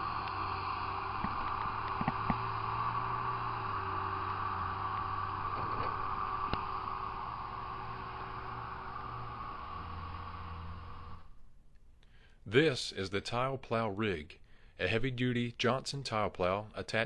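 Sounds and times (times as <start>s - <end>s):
diesel earthmoving machine running: 0.0s - 11.4s.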